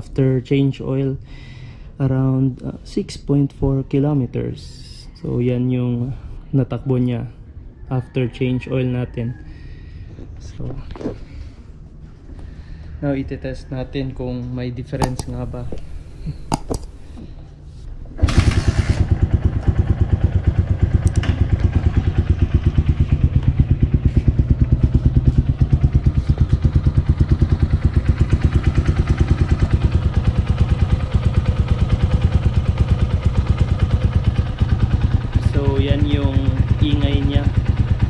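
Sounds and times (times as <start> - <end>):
short clicks: 15.0 - 15.5
motorcycle engine idling: 19.0 - 38.0.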